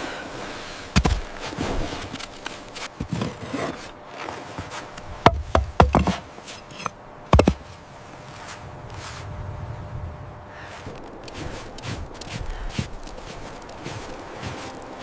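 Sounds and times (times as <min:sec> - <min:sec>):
rubbing and scraping: 0:01.0 - 0:09.3, 0:10.8 - 0:15.0
hard wooden knocks: 0:05.2 - 0:06.2, 0:07.3 - 0:07.6.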